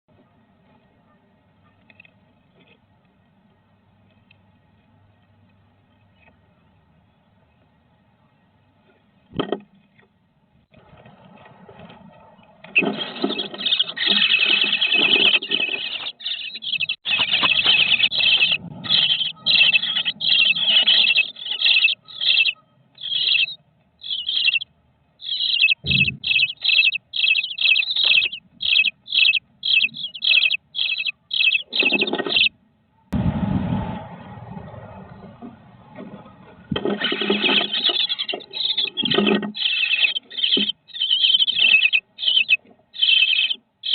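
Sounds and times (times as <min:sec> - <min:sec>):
nestlings raspy begging calls: 0:12.8 - 0:32.5, 0:36.8 - 0:43.9
thump: 0:25.8 - 0:26.2.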